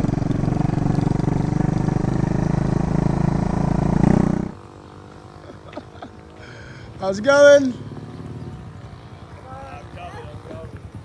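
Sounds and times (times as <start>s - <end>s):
motorbike engine running: 0.0s - 5.4s, 7.7s - 11.0s.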